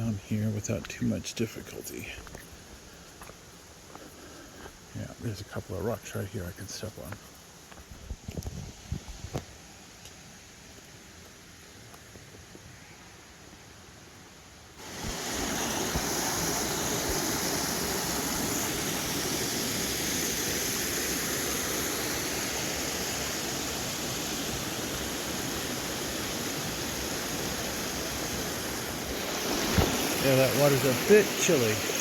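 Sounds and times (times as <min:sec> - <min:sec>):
waterfall rushing: 0:14.8 - 0:32.0.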